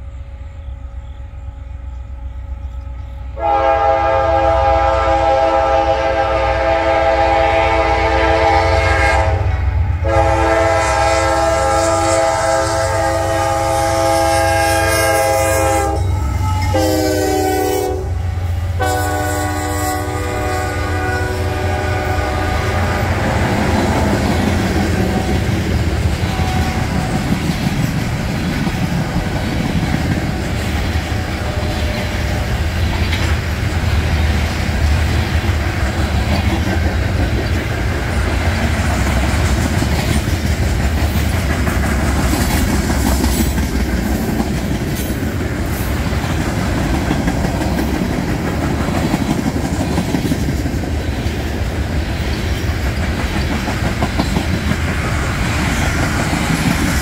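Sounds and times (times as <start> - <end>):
train rumble: 0.0 - 57.0
locomotive air horn: 3.3 - 23.4, 26.2 - 27.2, 31.1 - 32.6.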